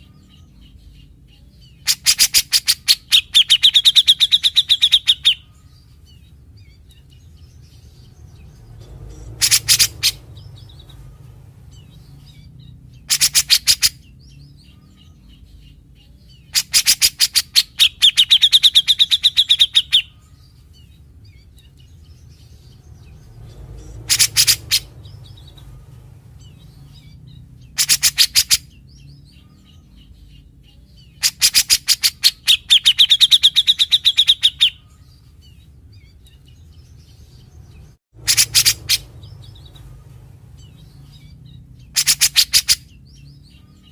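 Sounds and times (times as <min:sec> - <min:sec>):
bird singing rapid chattering notes: 0:00.0 - 0:43.9.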